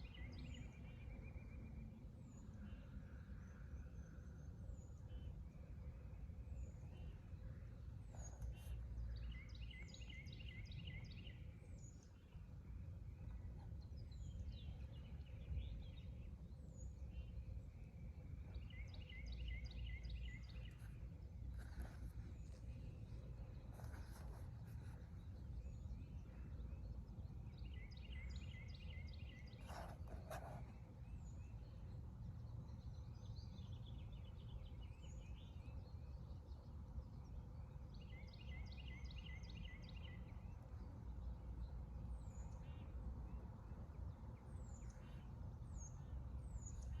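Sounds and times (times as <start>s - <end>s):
low background rumble: 0.7s - 34.4s.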